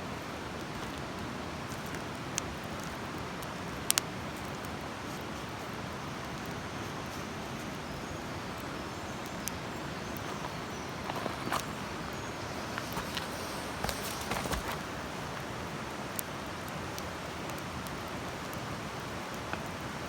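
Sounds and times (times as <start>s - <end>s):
campfire flames hissing: 0.0s - 20.0s
fire crackling and popping: 0.1s - 20.0s.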